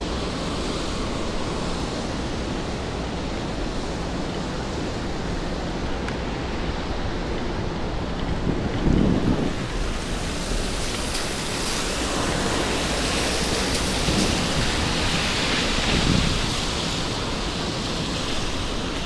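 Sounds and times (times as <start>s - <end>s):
rain on wet pavement: 0.0s - 19.0s.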